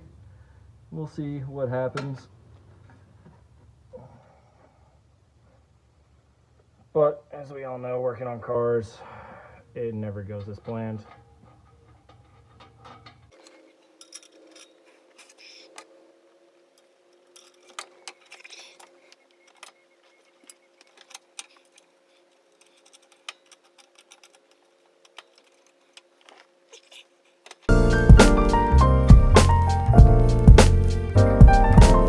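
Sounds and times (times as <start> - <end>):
tools clicking and clinking: 11.1 - 16.0, 16.7 - 27.7.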